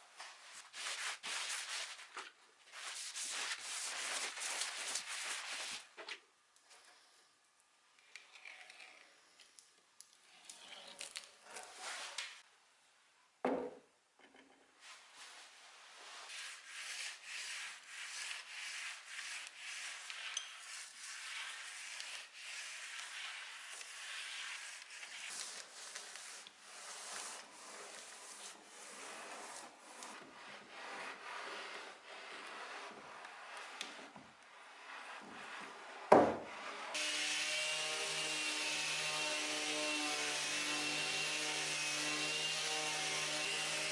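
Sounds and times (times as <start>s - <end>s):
hand sanding wood: 0.5s - 2.1s, 2.7s - 5.8s, 16.0s - 36.3s, 36.9s - 43.9s.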